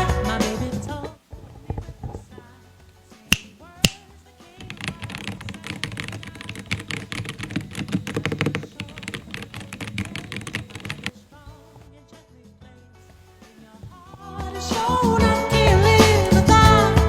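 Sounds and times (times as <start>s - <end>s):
computer keyboard typing: 4.6s - 11.2s.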